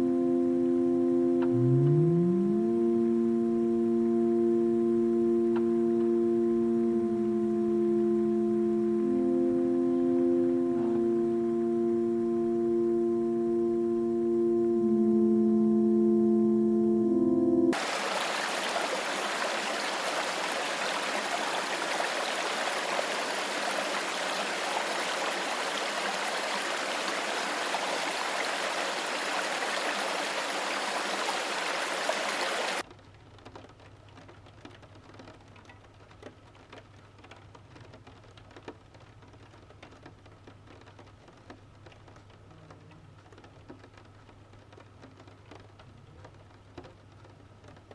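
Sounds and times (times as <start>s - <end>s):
rushing water: 17.8s - 32.8s.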